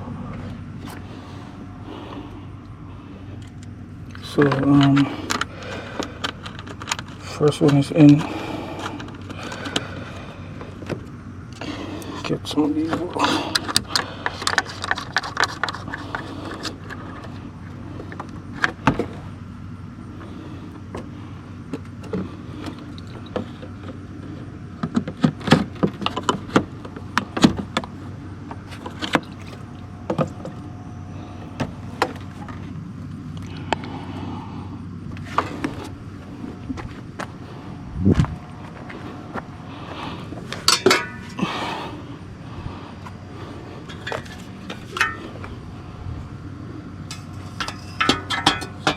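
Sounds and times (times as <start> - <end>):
steady low hum: 0.0 - 48.9
clinks and knocks of tools: 3.4 - 9.9, 40.5 - 41.5, 43.8 - 45.6, 47.0 - 48.9.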